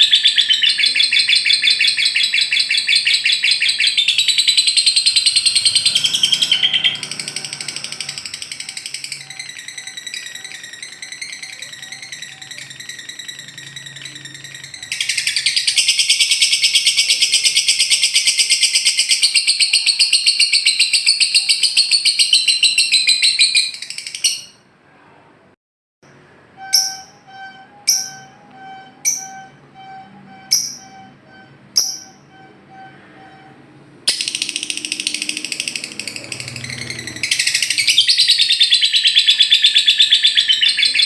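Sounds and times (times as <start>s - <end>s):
lovebird chattering trill: 0.0s - 24.6s, 34.1s - 41.0s
sharp high bird calls: 0.0s - 24.7s, 26.6s - 41.0s.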